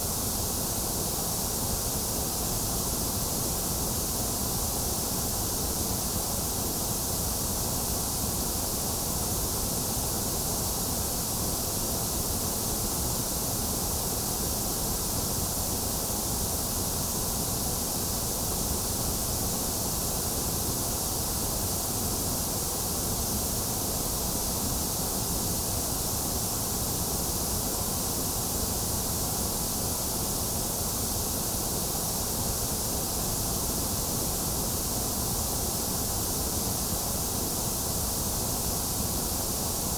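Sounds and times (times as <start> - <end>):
steady white noise: 0.0 - 39.9.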